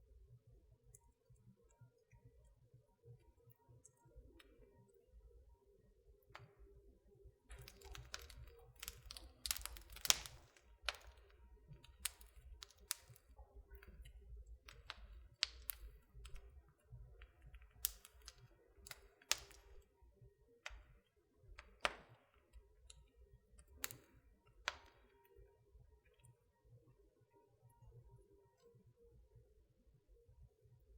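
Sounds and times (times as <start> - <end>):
wood fire crackling: 7.5 - 20.0, 20.6 - 25.4.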